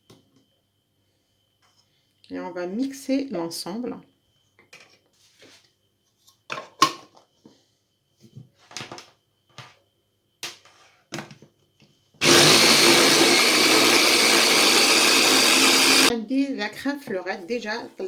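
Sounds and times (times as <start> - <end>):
electric blender running: 12.2 - 16.1.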